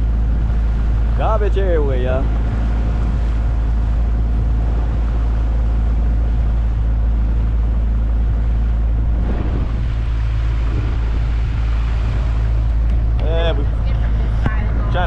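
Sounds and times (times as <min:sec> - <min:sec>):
outboard motor droning: 0:00.0 - 0:15.0.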